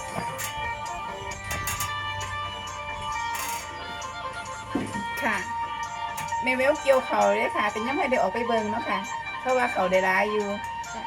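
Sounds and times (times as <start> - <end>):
plucked lute droning notes: 0.0 - 8.8.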